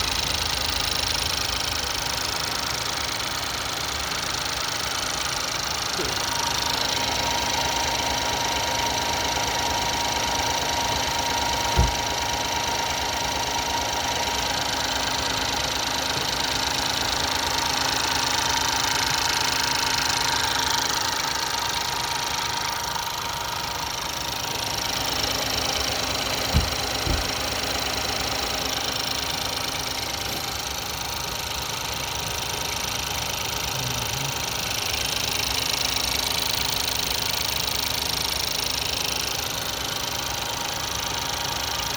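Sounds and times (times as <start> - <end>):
car engine idling: 0.0 - 41.9
short sharp knocks: 26.5 - 27.4.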